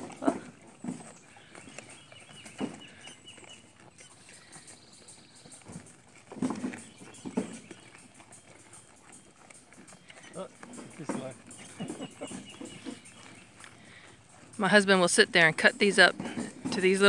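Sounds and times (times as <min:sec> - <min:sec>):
goats crunching watermelon: 0:00.0 - 0:17.0.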